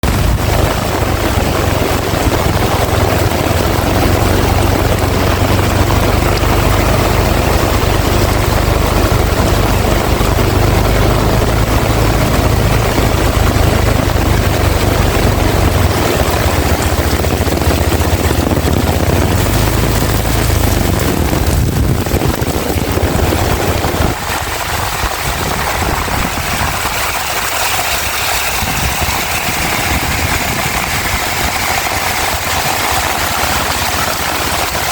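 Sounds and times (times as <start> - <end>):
heavy rain pouring: 0.0 - 34.9
wind rumbling on microphone: 0.0 - 34.9.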